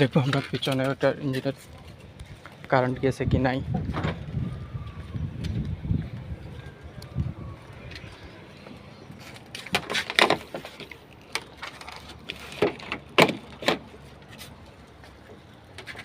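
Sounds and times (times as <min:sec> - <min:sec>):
handling knocks and clicks: 0:09.3 - 0:16.0.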